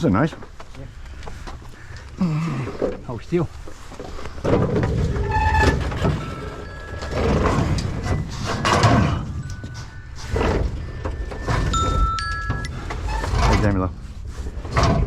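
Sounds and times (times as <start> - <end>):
low rumble: 4.5 - 9.7
phone ringtone melody: 6.3 - 12.8.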